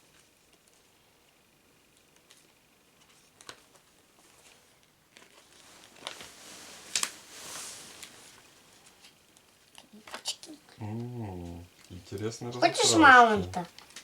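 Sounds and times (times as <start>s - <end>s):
paper rustling: 2.2s - 10.4s
small clicks from handling stickers: 9.0s - 10.6s.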